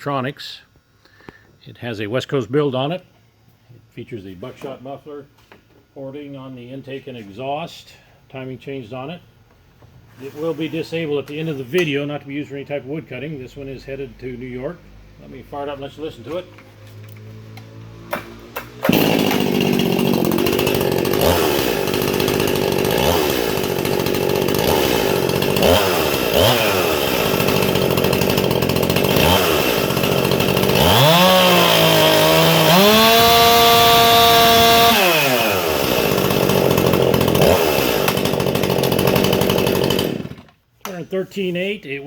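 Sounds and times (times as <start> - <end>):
chainsaw idling and revving: 17.4 - 40.5.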